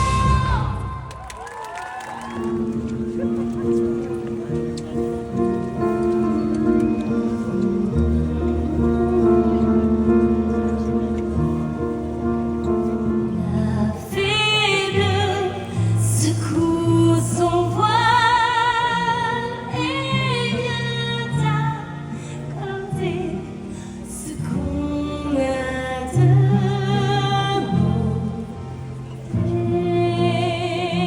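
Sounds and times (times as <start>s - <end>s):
slow musical accompaniment: 2.4s - 31.0s.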